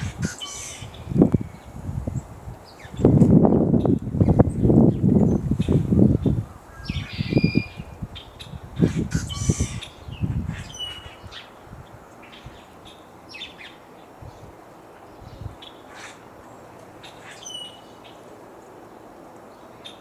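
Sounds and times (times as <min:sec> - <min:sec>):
wind buffeting microphone: 0:00.0 - 0:13.0, 0:14.1 - 0:15.7
birds chirping: 0:00.0 - 0:20.0.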